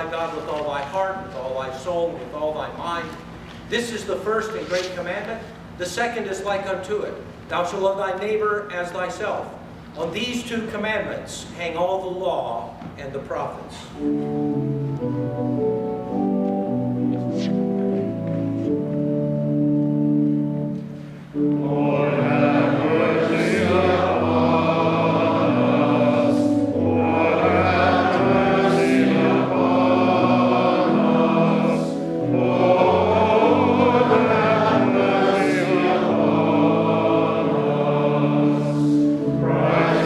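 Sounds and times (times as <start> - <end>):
organ chord: 13.9 - 40.0
choir singing: 21.4 - 40.0.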